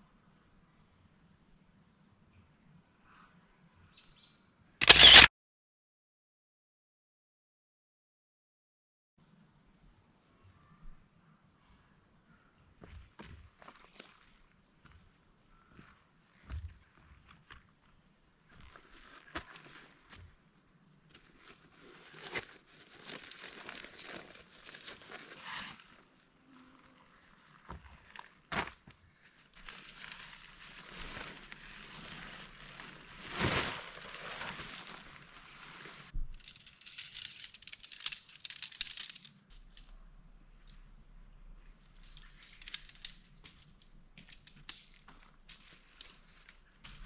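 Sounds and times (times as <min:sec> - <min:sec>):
sharp click: 0:04.8 - 0:05.3
camping gear crinkling and rustling: 0:13.0 - 0:15.0, 0:15.6 - 0:39.9, 0:41.8 - 0:47.0.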